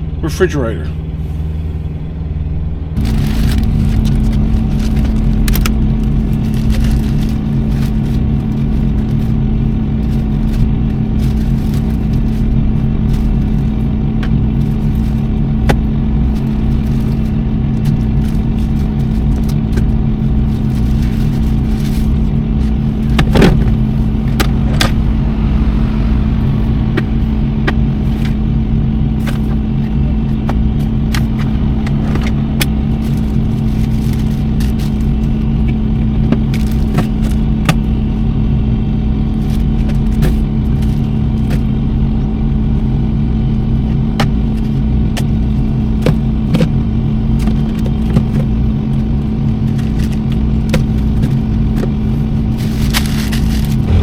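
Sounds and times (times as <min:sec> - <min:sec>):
vehicle engine running: 0:00.0 - 0:54.0
rustling: 0:03.0 - 0:26.0.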